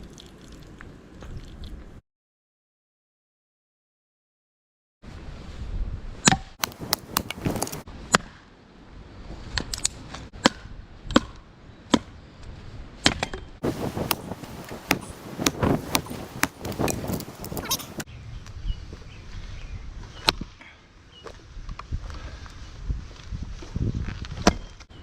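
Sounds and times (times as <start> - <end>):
sharp chopping strikes: 6.2 - 8.4, 10.4 - 12.1, 13.0 - 18.0.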